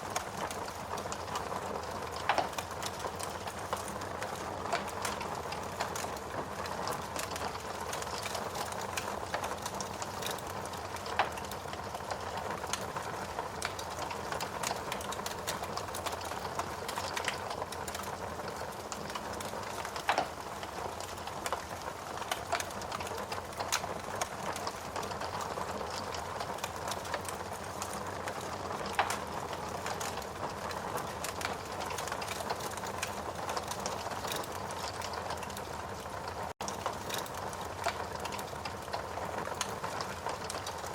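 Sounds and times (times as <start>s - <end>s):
wood fire crackling: 0.0s - 40.9s
fire pops: 2.0s - 10.4s, 19.1s - 21.6s, 28.3s - 35.6s.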